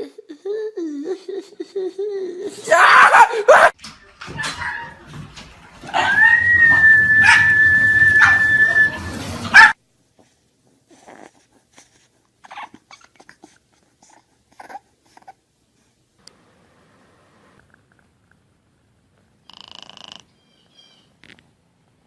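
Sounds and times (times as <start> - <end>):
dog crying out: 2.6 - 5.1, 5.8 - 9.8, 12.4 - 13.3
dog whining: 5.9 - 9.8, 10.9 - 15.4
puppy whimpering: 6.0 - 9.8, 10.9 - 15.4.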